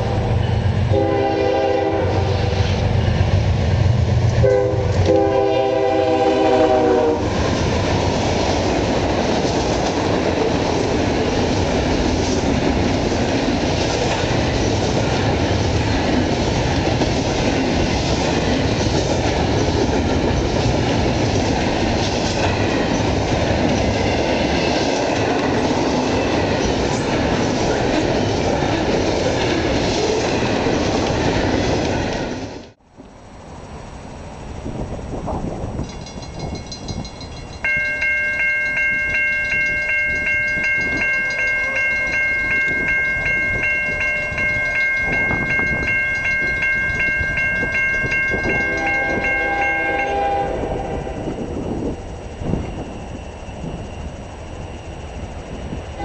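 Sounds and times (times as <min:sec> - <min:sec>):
steel wheels on rails: 0:00.0 - 0:56.0
train horn blowing: 0:00.8 - 0:02.8, 0:04.4 - 0:07.4, 0:48.4 - 0:51.4.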